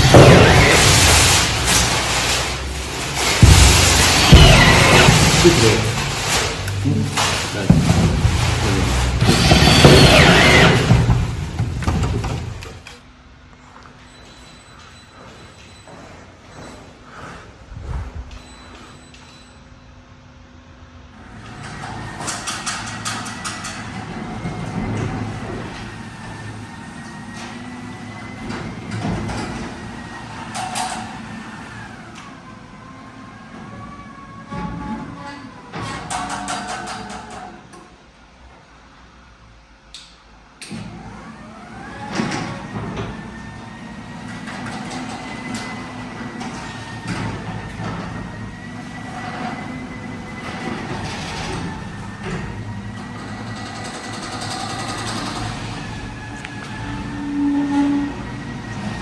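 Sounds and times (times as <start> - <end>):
garage door whining on tracks: 0.0 - 13.1, 21.1 - 59.0
sharp knocks: 3.3 - 12.9.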